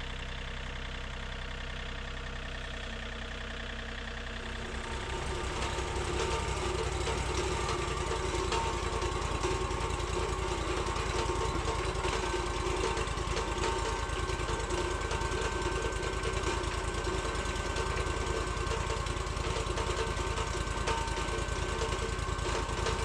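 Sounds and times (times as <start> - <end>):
sawmill engine running: 4.4 - 23.0.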